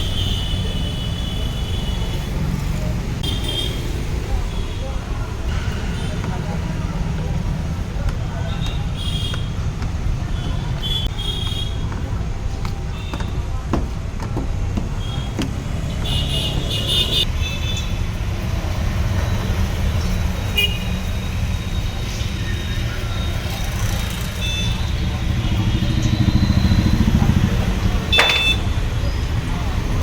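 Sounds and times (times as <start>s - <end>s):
street traffic rumble: 0.0s - 30.0s
vehicle horn toots: 28.1s - 28.8s.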